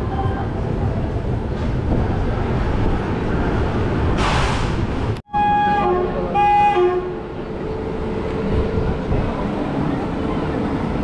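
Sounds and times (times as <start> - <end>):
train rumbling on track: 0.0 - 11.0
train horn blasts: 5.3 - 7.2.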